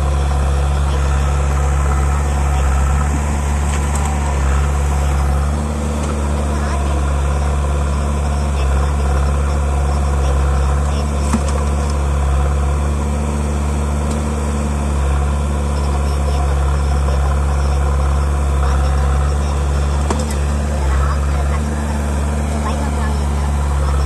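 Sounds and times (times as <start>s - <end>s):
heavy diesel engine idling: 0.0s - 24.0s.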